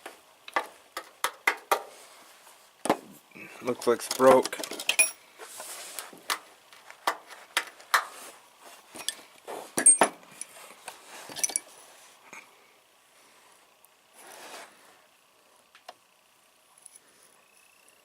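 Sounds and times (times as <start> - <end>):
metal tools clinking in drawer: 4.2 - 5.2, 9.0 - 9.2, 9.8 - 10.6, 11.3 - 11.7.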